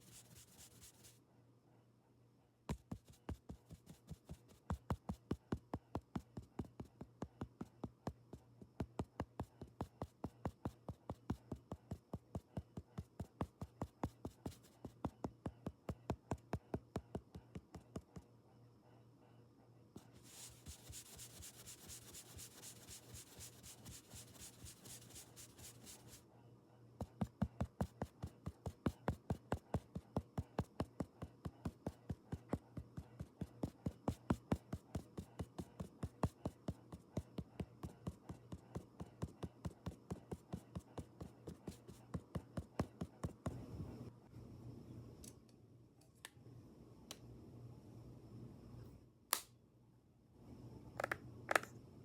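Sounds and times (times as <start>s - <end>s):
rhythmic rubbing or brushing: 0.0s - 1.2s, 20.0s - 26.2s
faint low hum: 0.0s - 52.0s.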